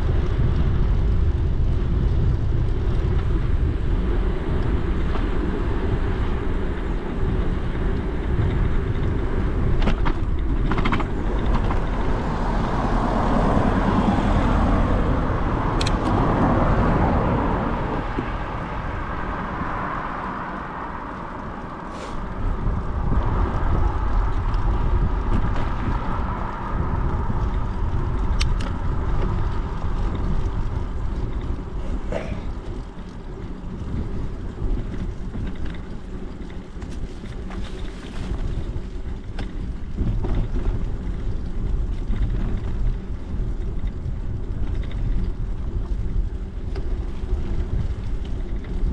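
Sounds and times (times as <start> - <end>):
bicycle tyre rumble: 0.0 - 48.9
passing vehicle: 0.0 - 48.9
wind buffeting microphone: 0.0 - 48.9
sharp clicks and rattles: 7.9 - 12.1, 15.7 - 16.4, 27.3 - 37.6.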